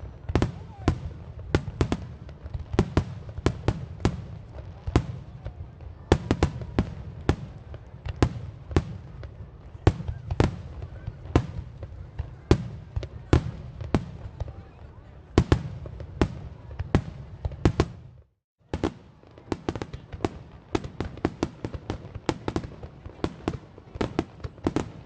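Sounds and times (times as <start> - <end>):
fireworks bangs: 0.0 - 25.0.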